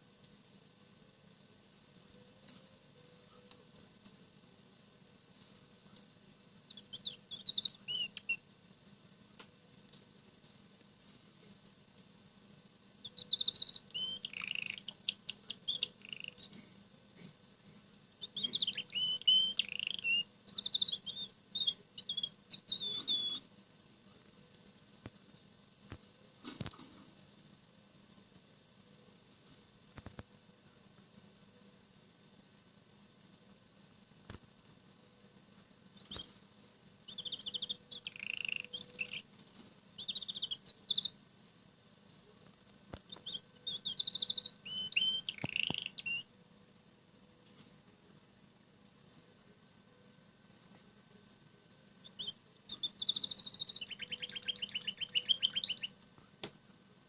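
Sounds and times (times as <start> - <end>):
canary singing: 6.6 - 8.5, 13.0 - 16.6, 18.1 - 23.5, 36.0 - 36.4, 37.0 - 39.3, 39.9 - 41.2, 42.9 - 46.4, 52.0 - 56.0.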